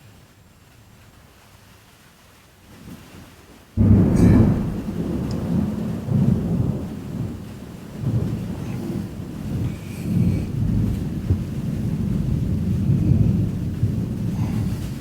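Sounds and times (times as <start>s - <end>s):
deep rumble: 3.8s - 6.7s, 8.2s - 15.0s.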